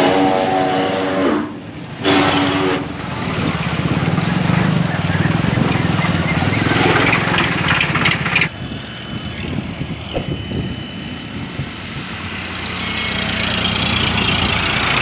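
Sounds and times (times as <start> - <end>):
tractor diesel engine running: 1.6 - 8.6, 10.3 - 15.0.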